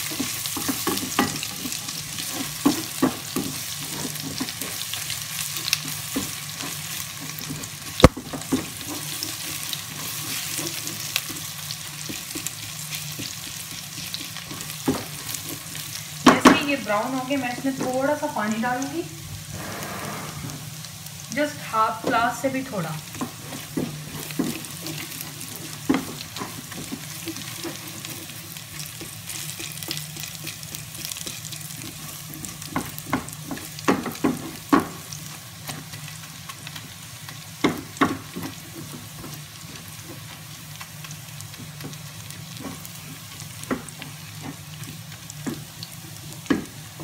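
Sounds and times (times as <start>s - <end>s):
food sizzling in oil: 0.0s - 47.0s
spatula scraping a pot: 23.1s - 33.6s.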